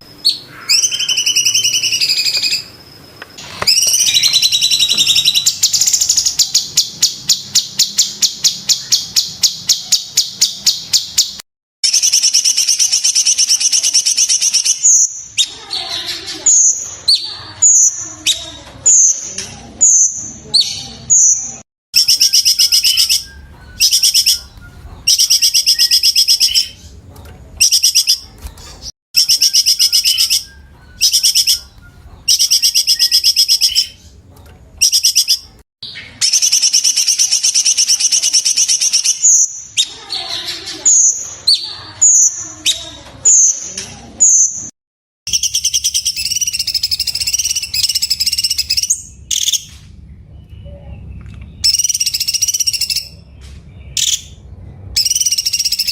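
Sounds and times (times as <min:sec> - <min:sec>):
bird singing high trills: 0:00.1 - 0:02.8, 0:03.4 - 0:19.2, 0:22.0 - 0:26.9, 0:29.2 - 0:34.0, 0:45.3 - 0:49.7, 0:51.6 - 0:53.2, 0:55.0 - 0:55.9
bird falling whistles: 0:03.4 - 0:05.5.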